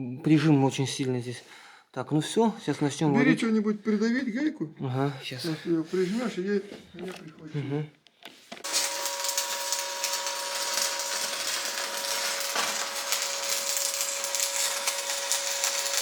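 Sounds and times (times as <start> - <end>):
arc welding crackling sizzle: 8.6 - 16.0.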